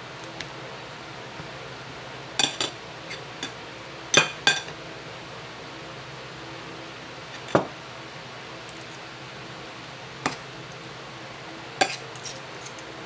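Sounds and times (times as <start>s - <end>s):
dishes and cutlery clinking: 11.8s - 12.9s.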